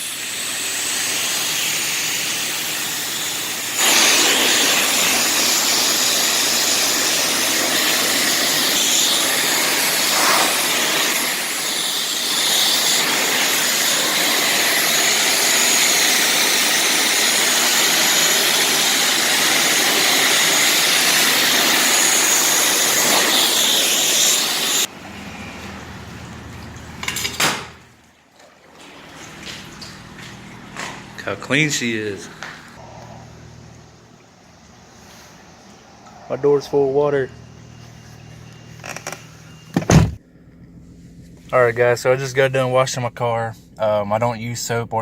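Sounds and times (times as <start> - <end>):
pressure washer spraying car: 0.0 - 25.6.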